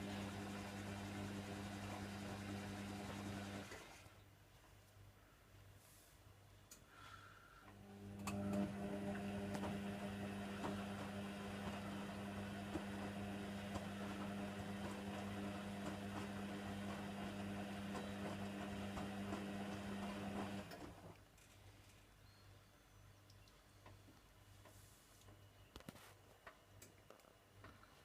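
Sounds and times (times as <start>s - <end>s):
washing machine motor humming: 0.0s - 4.0s, 7.7s - 21.1s.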